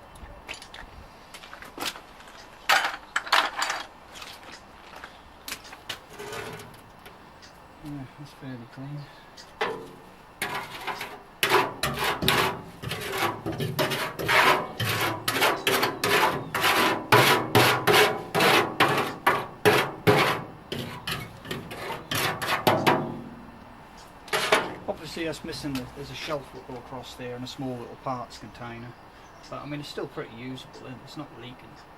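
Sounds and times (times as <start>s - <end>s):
hand scrubbing strokes: 10.4s - 23.0s.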